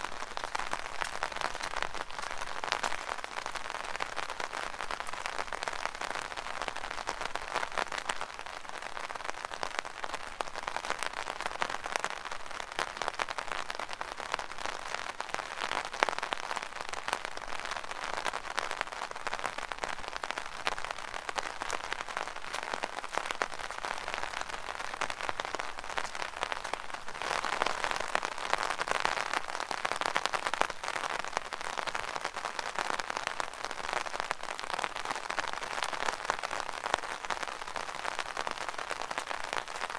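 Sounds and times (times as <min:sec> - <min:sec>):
rain pattering on an umbrella: 0:00.0 - 0:39.9.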